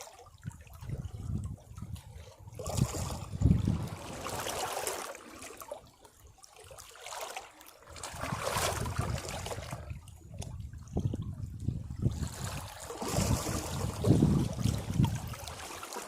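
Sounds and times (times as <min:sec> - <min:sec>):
sea waves washing over rocks: 0:02.7 - 0:05.6, 0:08.0 - 0:10.0, 0:12.1 - 0:16.0.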